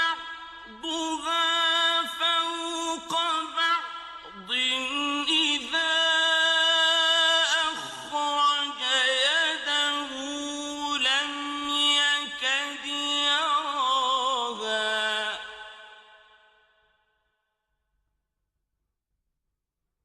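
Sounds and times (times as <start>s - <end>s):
person chanting recitation: 0.0s - 15.8s.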